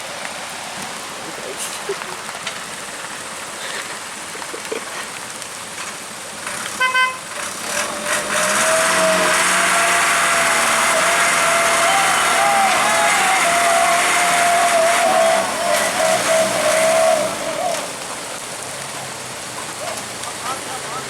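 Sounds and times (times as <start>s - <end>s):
rain hissing: 0.0s - 21.0s
heavy vehicle engine running: 7.3s - 18.6s.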